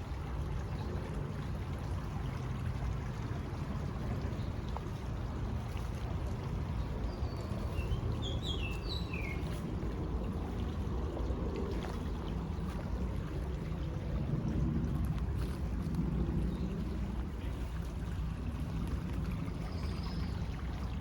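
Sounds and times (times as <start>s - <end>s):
low outdoor rumble: 0.0s - 21.0s
bird chirping: 7.8s - 9.4s.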